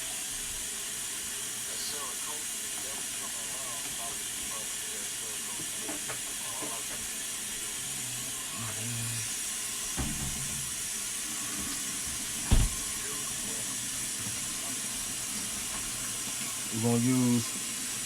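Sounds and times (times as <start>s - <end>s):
thump in sink: 9.9s - 10.7s, 12.4s - 12.9s
tap running into sink: 9.9s - 13.0s.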